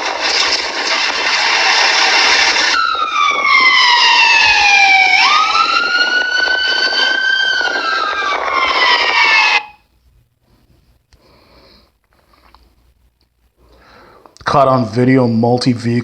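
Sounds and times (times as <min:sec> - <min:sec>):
loud rushing noise: 0:00.0 - 0:09.8
emergency siren wailing: 0:00.0 - 0:09.9.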